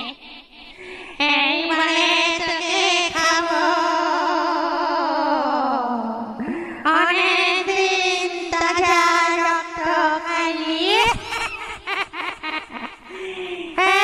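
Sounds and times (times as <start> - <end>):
high wailing voice with vibrato: 0.0 - 0.2.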